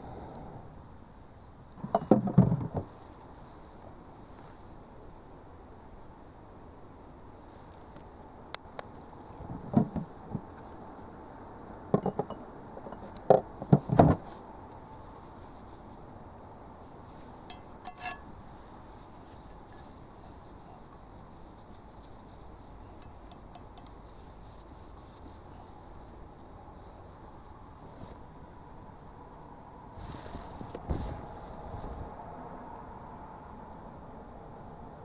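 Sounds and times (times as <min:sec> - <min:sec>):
faint steady hiss: 0:00.0 - 0:35.0
metal utensils clinking on cookware: 0:17.5 - 0:18.2.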